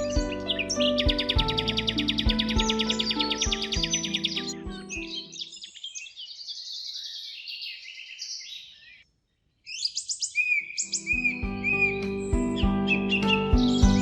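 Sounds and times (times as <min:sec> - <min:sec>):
soft background music: 0:00.0 - 0:05.4, 0:10.8 - 0:14.0
songbirds chirping and trilling: 0:00.0 - 0:14.0.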